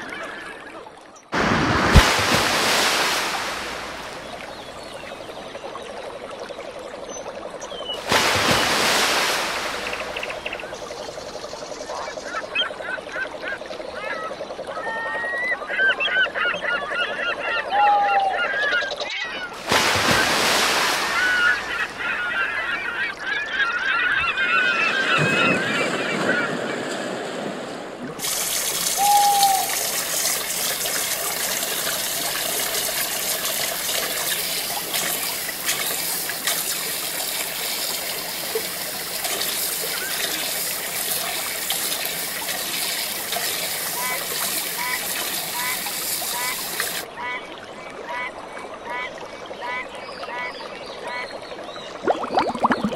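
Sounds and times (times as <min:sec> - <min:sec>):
water rushing over rocks: 0:01.3 - 0:05.4, 0:08.0 - 0:11.4, 0:19.5 - 0:23.1, 0:28.0 - 0:47.1, 0:52.0 - 0:52.9.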